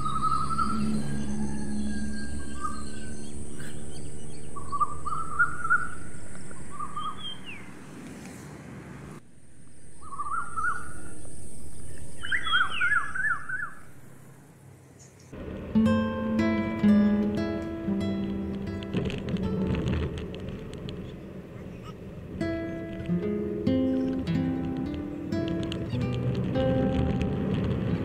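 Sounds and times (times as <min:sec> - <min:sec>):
songbirds warbling: 0:00.0 - 0:07.9, 0:09.7 - 0:14.3, 0:20.9 - 0:26.8
background hum: 0:00.0 - 0:28.0.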